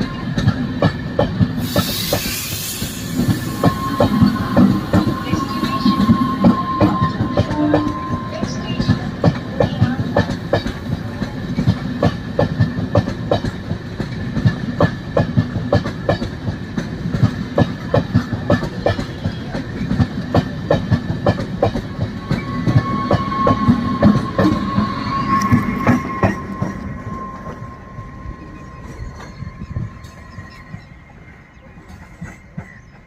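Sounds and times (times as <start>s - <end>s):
train wheels clicking over rail joints: 0.0s - 5.2s, 5.8s - 27.5s
train rumble: 0.0s - 33.0s
steady high tone: 2.2s - 10.5s, 21.9s - 31.8s.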